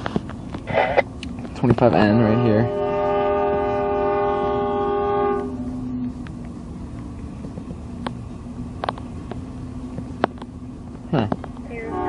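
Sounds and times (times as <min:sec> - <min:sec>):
train passing: 0:00.0 - 0:12.0
locomotive air horn: 0:02.0 - 0:06.0, 0:11.7 - 0:12.0.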